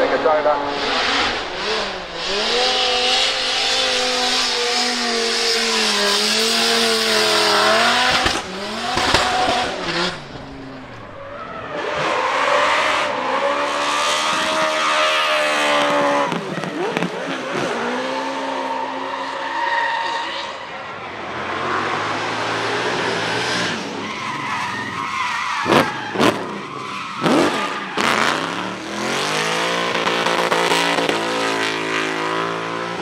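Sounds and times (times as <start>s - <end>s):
tyres squealing: 0.0s - 11.6s
car engine revving high: 0.0s - 19.2s, 25.6s - 33.0s.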